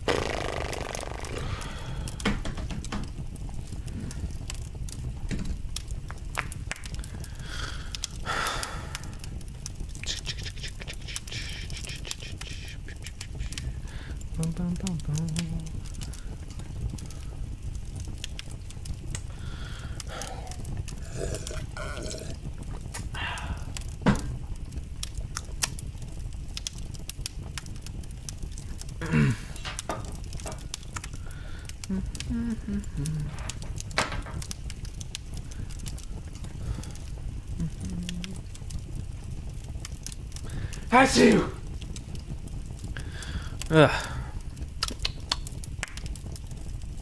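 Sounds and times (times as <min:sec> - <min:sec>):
breathy hissing: 0:00.0 - 0:02.7, 0:07.1 - 0:09.3, 0:09.9 - 0:14.4, 0:19.3 - 0:24.3, 0:29.0 - 0:29.9, 0:31.1 - 0:33.7, 0:35.4 - 0:38.5, 0:40.4 - 0:41.6, 0:43.0 - 0:44.4
fireplace crackling: 0:00.0 - 0:47.0.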